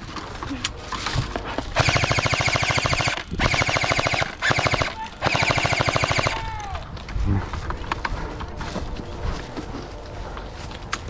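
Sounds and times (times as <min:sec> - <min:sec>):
airsoft gun firing bursts: 0:01.7 - 0:06.6.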